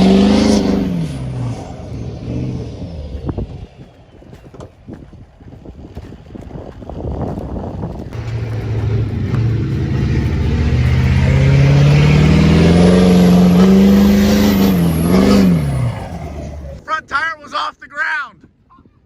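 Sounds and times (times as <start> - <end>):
pickup truck engine revving: 0.0 - 4.0, 8.2 - 16.8.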